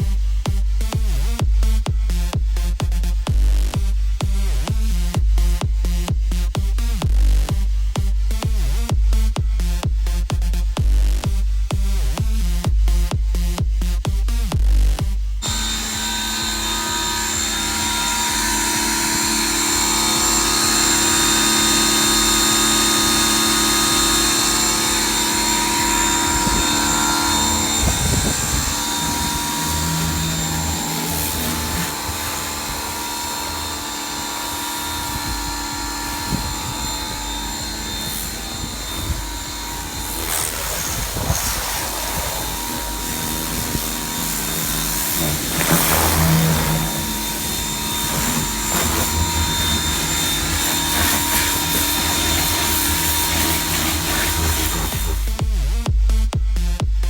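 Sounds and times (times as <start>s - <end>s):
water jet hissing: 15.4s - 55.7s
pressure washer motor whine: 15.4s - 55.8s.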